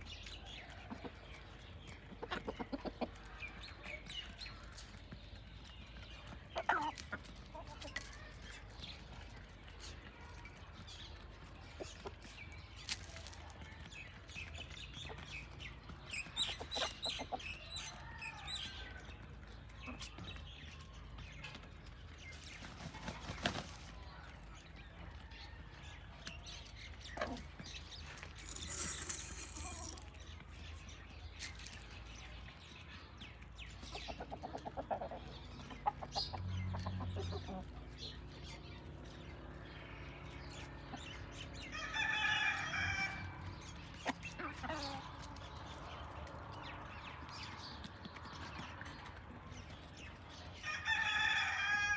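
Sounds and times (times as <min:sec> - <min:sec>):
hens clucking: 0:00.9 - 0:04.1, 0:06.2 - 0:08.2, 0:33.9 - 0:37.8.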